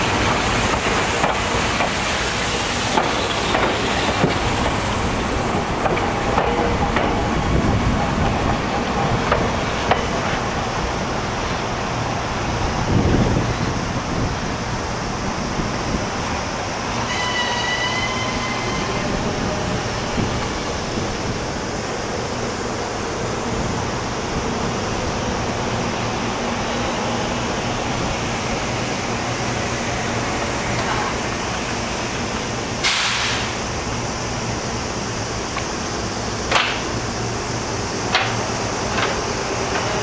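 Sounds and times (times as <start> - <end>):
train running noise: 0.0 - 40.0
short hiss: 32.8 - 33.7.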